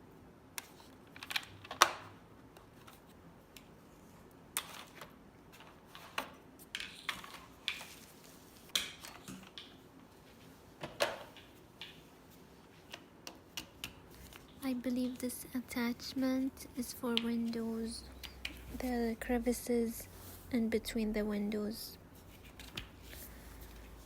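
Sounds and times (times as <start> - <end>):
plastic parts clicking and rattling: 0.6 - 3.7, 4.6 - 8.0.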